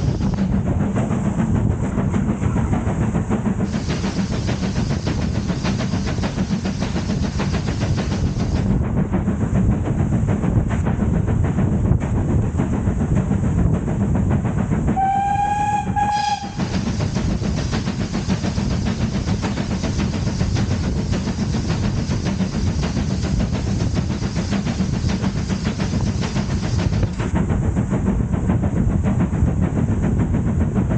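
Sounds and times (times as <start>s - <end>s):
train rumbling on rails: 0.0s - 30.9s
train whistle: 15.0s - 16.8s.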